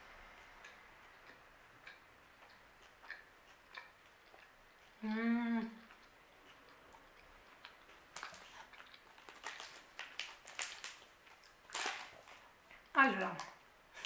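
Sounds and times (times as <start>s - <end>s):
soft chewing and mouth clicks: 0.3s - 14.0s
person humming mmm: 5.0s - 5.9s.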